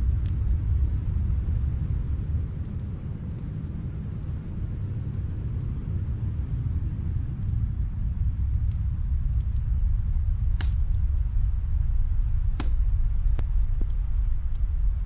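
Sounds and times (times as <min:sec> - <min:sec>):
low rumble: 0:00.0 - 0:15.0
wood fire crackling: 0:00.0 - 0:15.0
sharp pops of fire: 0:10.5 - 0:11.1, 0:12.2 - 0:14.0.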